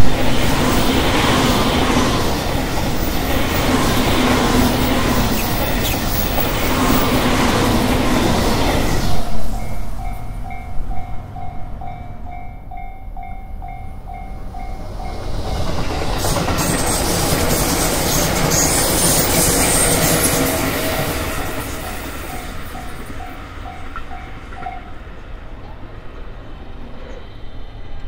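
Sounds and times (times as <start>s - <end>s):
train wheels clattering on rails: 0.0s - 26.3s
train passing: 0.0s - 28.0s
crossing warning bell ringing: 9.5s - 16.6s, 18.5s - 25.3s.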